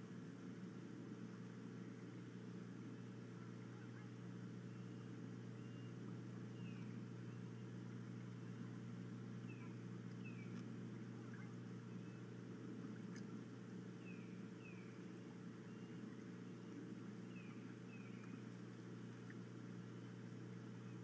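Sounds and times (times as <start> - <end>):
steady low hum: 0.0 - 21.0
faint downward bird chirps: 4.7 - 7.7.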